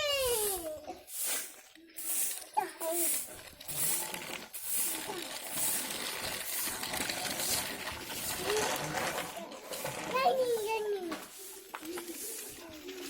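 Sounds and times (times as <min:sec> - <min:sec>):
faint child's voice: 0:00.0 - 0:01.1, 0:02.6 - 0:03.2, 0:10.0 - 0:13.0
small hard objects clinking: 0:02.0 - 0:10.1.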